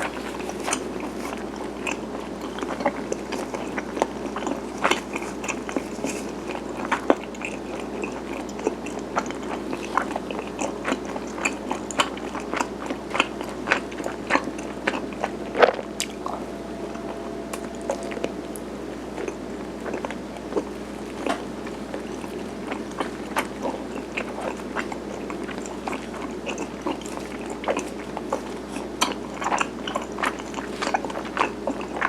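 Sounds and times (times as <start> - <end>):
chewing sticky food: 0.0 - 16.4, 17.0 - 32.0
steady low hum: 0.0 - 32.0.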